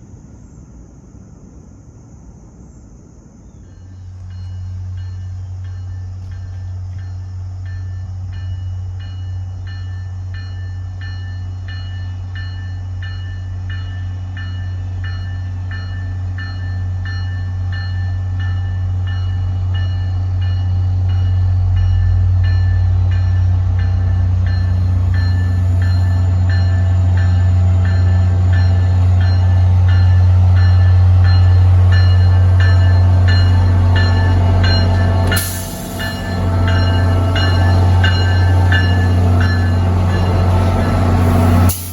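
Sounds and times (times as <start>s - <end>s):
diesel train engine drone: 0.0s - 41.9s
bell ringing: 24.6s - 41.0s.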